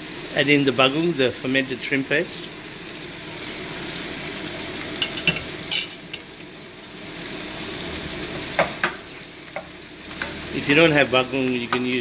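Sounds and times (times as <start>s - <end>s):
bacon and onions sizzling in a pan: 0.0s - 12.0s
spoon scraping against a pan: 5.0s - 6.0s.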